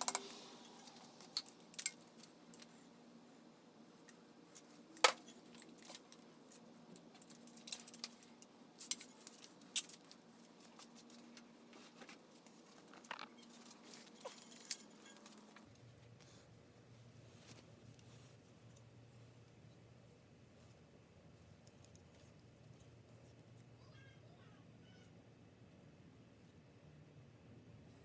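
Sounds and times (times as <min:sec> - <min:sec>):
metal tools clicking and clinking: 0:00.0 - 0:02.8, 0:04.1 - 0:11.5, 0:12.4 - 0:15.6.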